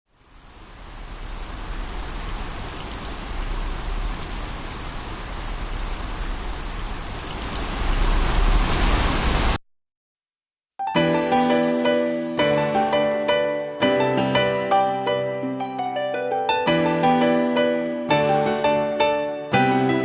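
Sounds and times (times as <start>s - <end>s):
heavy rain splashing: 0.1s - 9.6s.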